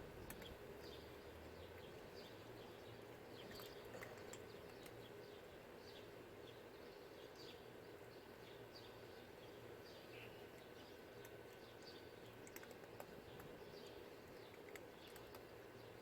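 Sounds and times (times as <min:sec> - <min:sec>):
low steady hum: 0:00.0 - 0:16.0
small birds chirping: 0:00.0 - 0:16.0
faint clicks: 0:00.2 - 0:00.6, 0:10.6 - 0:13.6.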